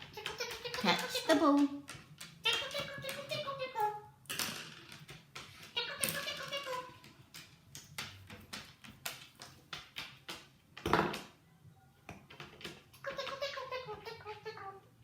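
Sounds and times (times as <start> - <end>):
parrot chattering speech-like: 0.0 - 1.8, 2.4 - 4.1, 5.7 - 7.1, 13.0 - 14.9
sharp clicks and taps: 7.0 - 11.3.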